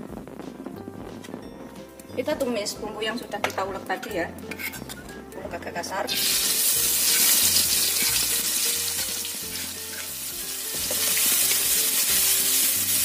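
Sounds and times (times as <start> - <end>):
paste sizzling in hot oil: 3.8 - 13.0.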